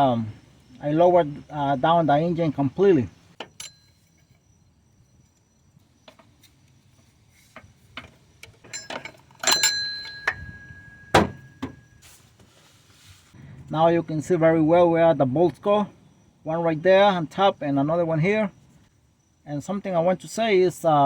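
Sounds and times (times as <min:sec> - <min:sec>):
sharp metallic clinks ringing: 0:03.5 - 0:05.3, 0:08.6 - 0:12.0.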